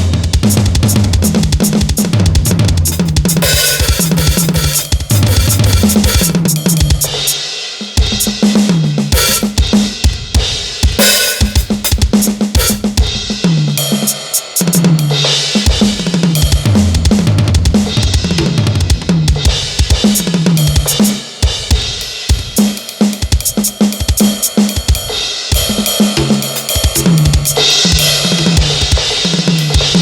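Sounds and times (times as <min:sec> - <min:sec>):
electronic kick and snare: 0:00.0 - 0:07.4, 0:08.0 - 0:13.3, 0:22.4 - 0:30.0
electronic tom fills: 0:00.0 - 0:07.4, 0:09.1 - 0:10.0, 0:10.9 - 0:13.2, 0:25.6 - 0:30.0
cymbal crashes: 0:03.0 - 0:07.7, 0:09.2 - 0:09.8, 0:11.0 - 0:11.8, 0:12.6 - 0:13.1.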